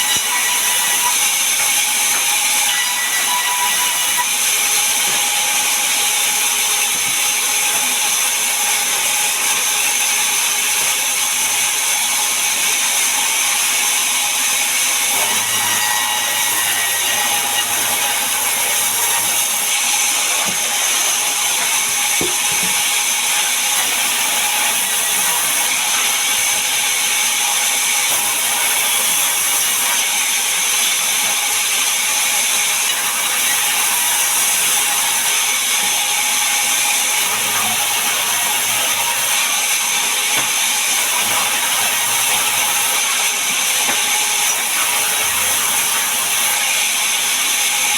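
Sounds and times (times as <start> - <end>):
sawmill saw cutting log: 0.0 - 47.9.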